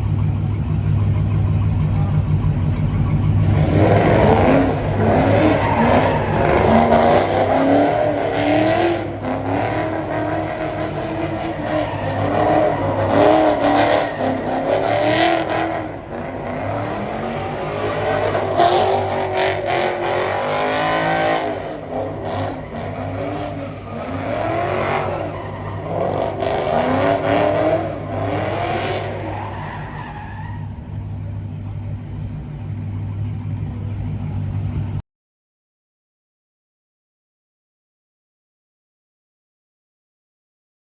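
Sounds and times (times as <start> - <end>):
car engines revving: 0.0 - 35.0
low engine hum: 30.6 - 35.0.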